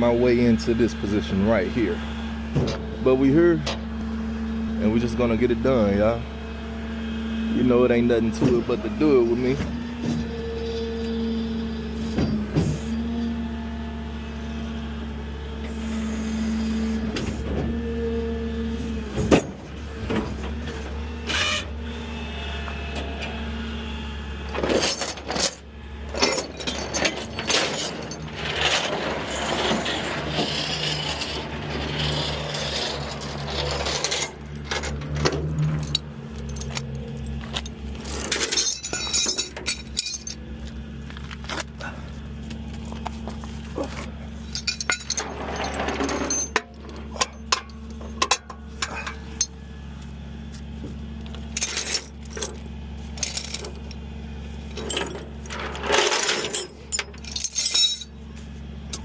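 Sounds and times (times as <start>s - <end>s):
truck engine running: 0.0s - 59.0s
metal clanks and knocks: 24.5s - 40.4s, 42.8s - 49.5s, 54.7s - 58.1s.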